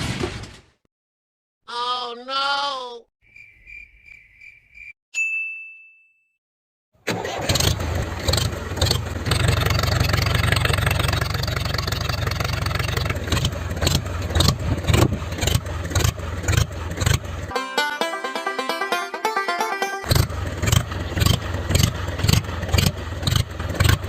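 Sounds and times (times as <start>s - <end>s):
engine starting and revving: 7.0s - 17.5s, 20.1s - 24.0s.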